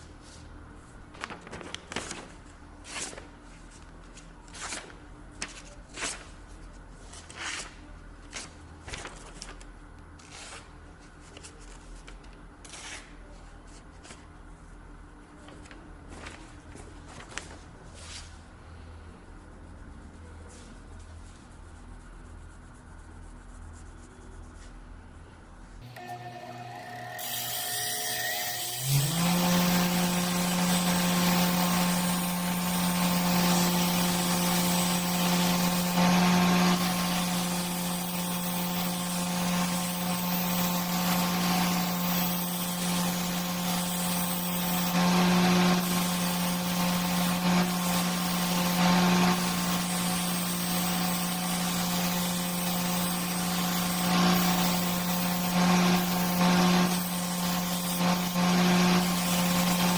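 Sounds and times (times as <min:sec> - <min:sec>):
electric power tool motor: 0:25.8 - 0:59.9
hissing grinding noise: 0:25.8 - 0:59.9.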